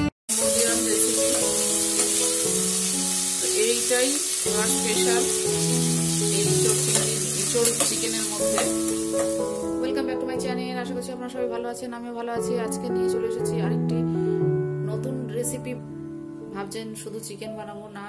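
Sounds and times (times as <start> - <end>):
soft background music: 0.0 - 18.0
prawns sizzling in hot oil: 0.3 - 9.8
spatula stirring in a pan: 6.2 - 9.6.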